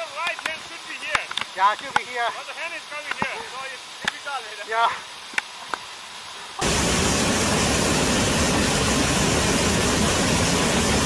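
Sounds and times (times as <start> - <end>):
waterfall roaring: 6.6 - 11.0.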